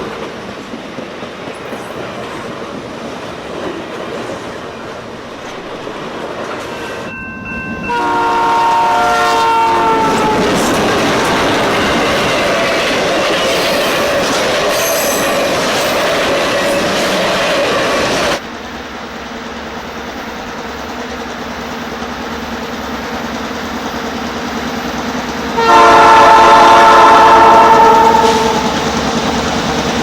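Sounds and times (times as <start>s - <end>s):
train running on rails: 0.0s - 30.0s
train air horn chord: 7.9s - 10.8s, 25.6s - 28.7s.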